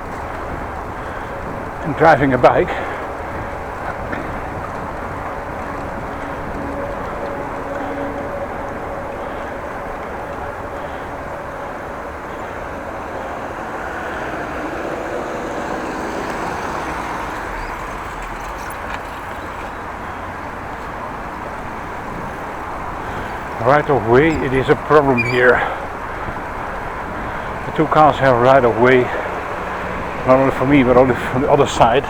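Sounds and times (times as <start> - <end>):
wind on microphone: 0.0 - 13.2
tyre and road noise: 0.0 - 32.0.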